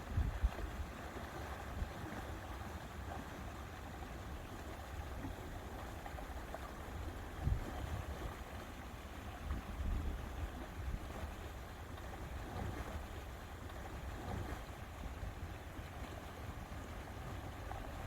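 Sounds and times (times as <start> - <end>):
wind rumbling on microphone: 0.0 - 0.8, 7.4 - 8.4
water lapping: 0.1 - 18.0.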